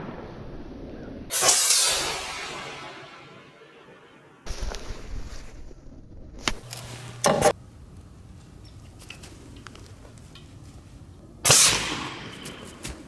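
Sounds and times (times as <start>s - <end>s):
potato cannon shots: 11.5s - 12.8s.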